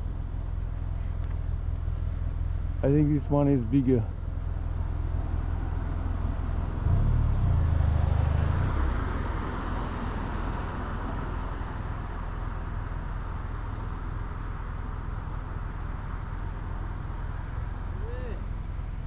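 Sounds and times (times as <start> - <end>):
road and wind noise: 0.0 - 19.0.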